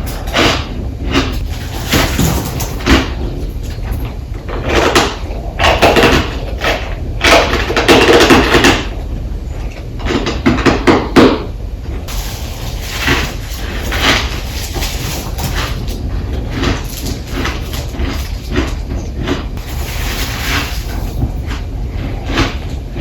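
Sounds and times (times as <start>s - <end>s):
ice crunching being chewed: 12.1s - 23.0s.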